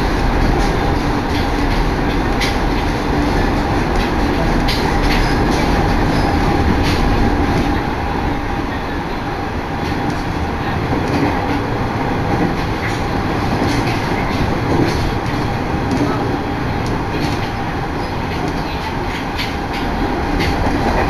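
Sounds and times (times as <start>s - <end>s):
train rumble inside carriage: 0.0s - 21.0s.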